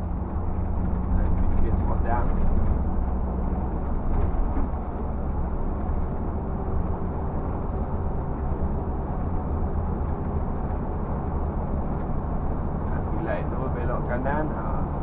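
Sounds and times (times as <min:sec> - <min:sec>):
bus engine drone: 0:00.0 - 0:15.0
road noise: 0:00.0 - 0:15.0.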